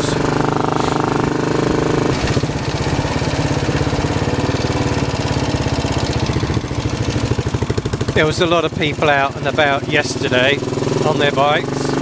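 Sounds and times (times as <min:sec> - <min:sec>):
motorcycle engine firing pulses: 0:00.0 - 0:12.0.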